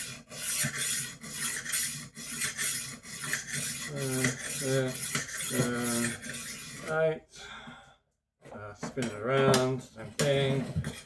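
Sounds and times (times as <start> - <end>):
knife sharpener rasping scrape: 0.0 - 7.0.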